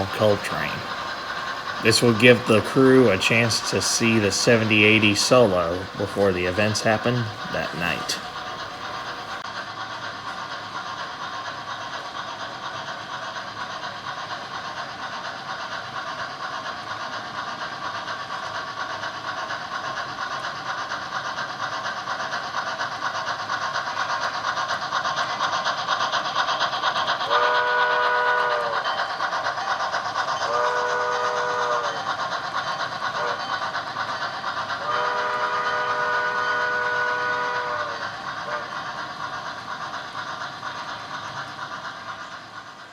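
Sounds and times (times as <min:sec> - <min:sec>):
model train running sound: 0:00.0 - 0:42.9.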